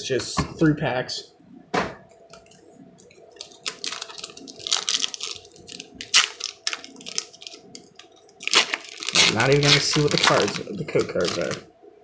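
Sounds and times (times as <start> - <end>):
foil wrapper crinkling and tearing: 3.3 - 11.6.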